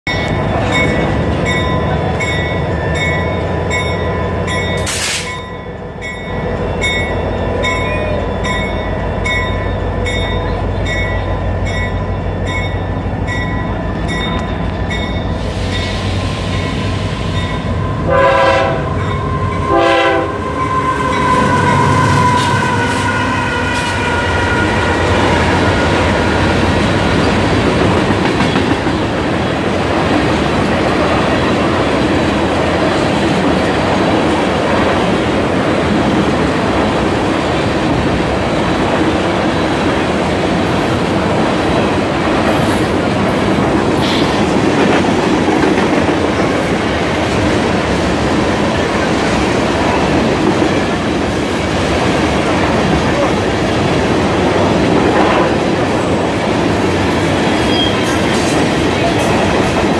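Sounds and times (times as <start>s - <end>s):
freight train rumble: 0.0s - 59.9s
train wheels clattering on rails: 0.1s - 17.9s, 18.9s - 59.9s
train horn blasts: 17.7s - 26.7s.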